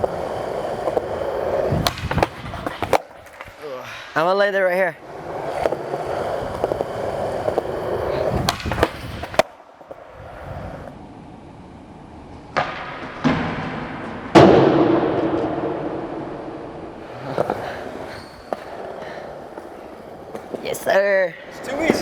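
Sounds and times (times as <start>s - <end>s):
skateboard clacks and slaps: 0.0s - 3.7s, 5.0s - 10.2s, 12.5s - 21.1s
skateboard wheels rolling on concrete: 0.0s - 22.0s.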